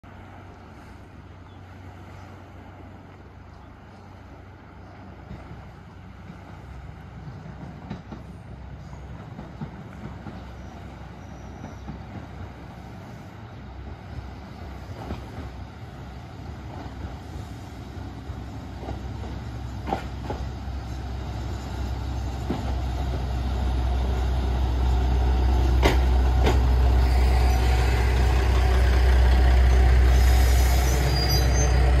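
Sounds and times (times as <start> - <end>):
diesel railcar engine rumble: 0.0 - 32.0
train wheels clacking: 18.3 - 20.6, 25.4 - 32.0.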